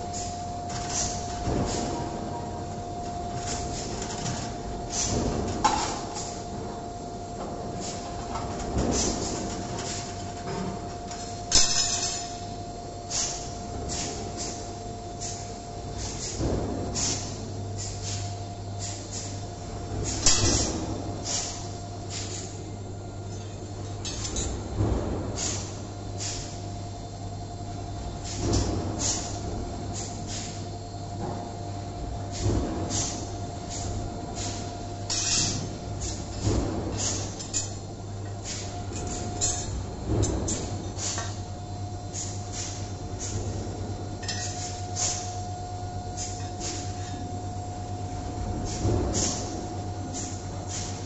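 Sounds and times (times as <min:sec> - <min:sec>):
wire bending machine hum and whine: 0:00.0 - 0:51.0
short pneumatic hisses: 0:13.1 - 0:14.6, 0:28.2 - 0:29.4
heavy machine clunks: 0:16.3 - 0:17.4, 0:24.1 - 0:25.8, 0:32.4 - 0:34.0, 0:35.2 - 0:37.7, 0:38.8 - 0:41.4, 0:48.3 - 0:50.3.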